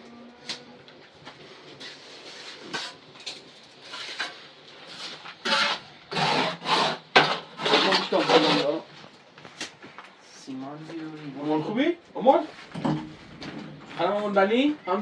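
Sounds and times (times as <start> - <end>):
hand tool rasping on wood: 5.5 - 8.7.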